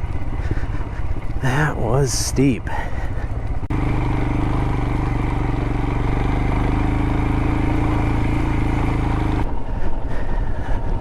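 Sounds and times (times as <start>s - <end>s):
motorcycle engine running: 0.0s - 1.6s, 3.2s - 10.1s.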